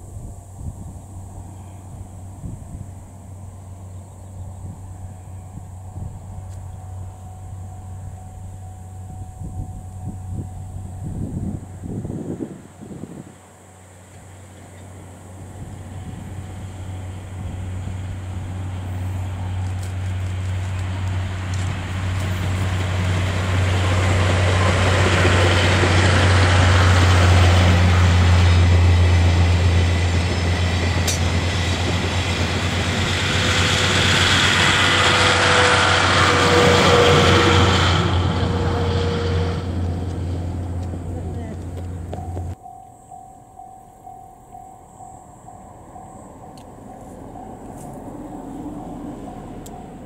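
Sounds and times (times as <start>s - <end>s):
diesel locomotive engine drone: 0.0s - 50.0s
train coaches rolling on rails: 13.4s - 50.0s.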